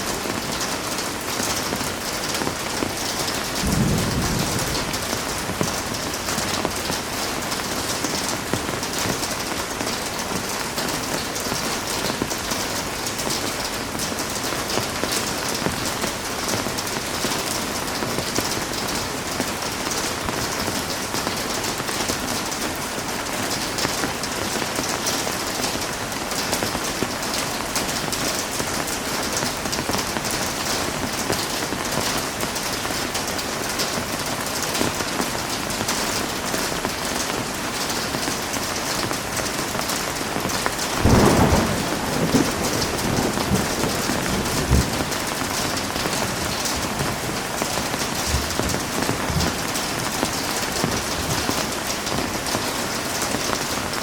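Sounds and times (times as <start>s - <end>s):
heavy rain falling: 0.0s - 54.0s
thunderclap rumbling: 2.8s - 7.2s, 40.7s - 51.5s.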